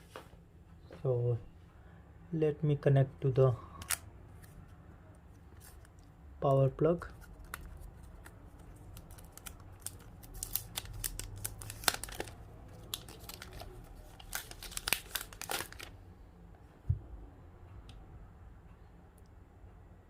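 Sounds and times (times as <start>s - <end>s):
plastic crinkling: 7.0s - 16.0s.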